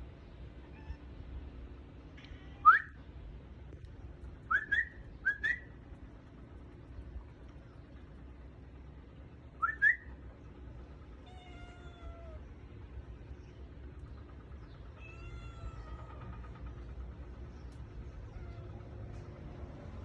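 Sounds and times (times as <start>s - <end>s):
cat meowing: 0.7s - 1.0s, 11.2s - 12.4s, 14.9s - 16.4s.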